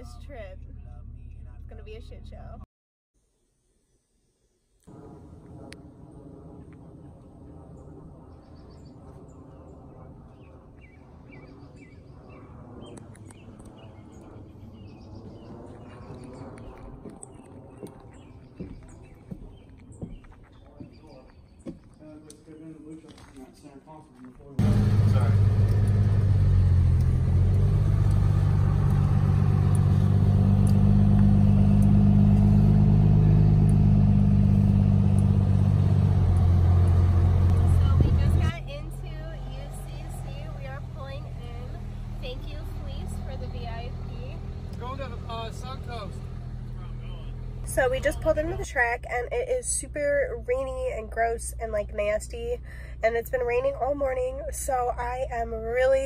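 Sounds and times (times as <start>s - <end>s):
vehicle engine droning: 0.0s - 2.6s, 24.6s - 56.0s
low rumble: 0.0s - 2.7s, 4.8s - 19.9s, 24.6s - 56.0s
bird chirping: 8.3s - 23.0s.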